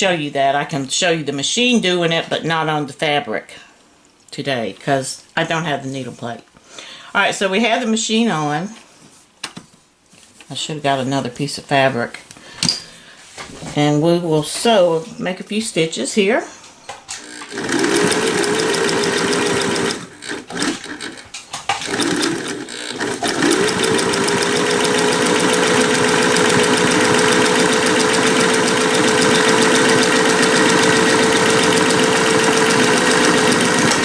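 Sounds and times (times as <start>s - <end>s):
sewing machine stitching: 17.1s - 34.0s.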